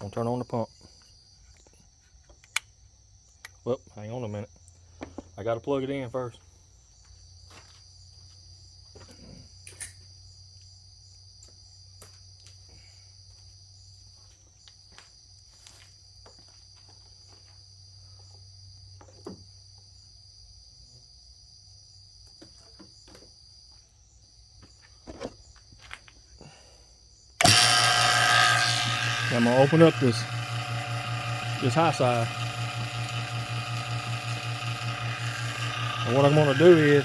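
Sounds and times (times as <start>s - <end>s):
low hum: 27.4s - 37.0s.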